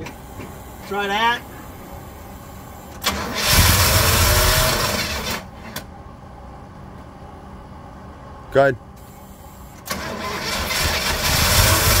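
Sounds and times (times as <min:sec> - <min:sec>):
car engine cranking and starting: 0:03.0 - 0:05.8, 0:09.8 - 0:12.0.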